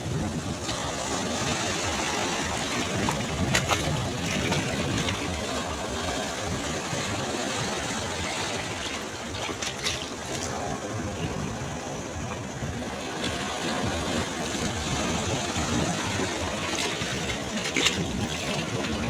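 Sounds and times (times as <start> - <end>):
sea waves washing on shore: 0.0 - 19.0.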